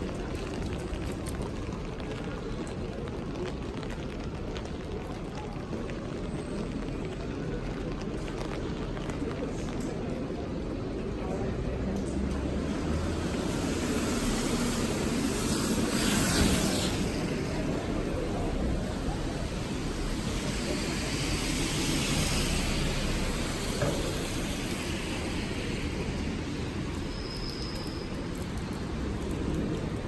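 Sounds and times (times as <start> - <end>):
vehicles swishing past: 11.7 - 30.0
rain hiss: 13.1 - 30.0.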